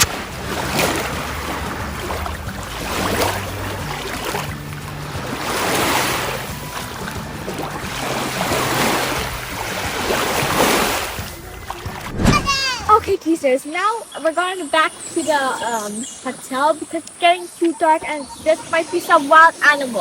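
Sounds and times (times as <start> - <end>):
waves washing onto shore: 0.0 - 12.8.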